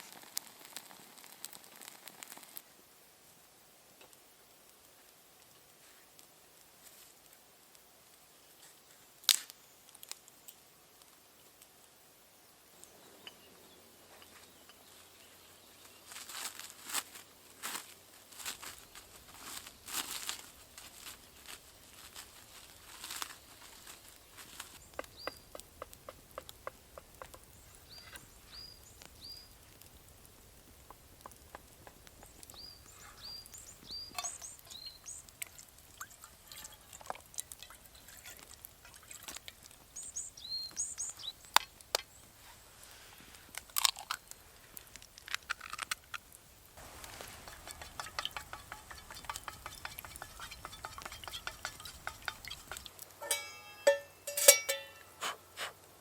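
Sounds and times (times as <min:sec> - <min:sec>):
small bird chirping: 0:24.4 - 0:29.6, 0:30.9 - 0:37.0, 0:39.9 - 0:42.3, 0:47.0 - 0:52.9
camp gear clicking and knocking: 0:46.8 - 0:55.1.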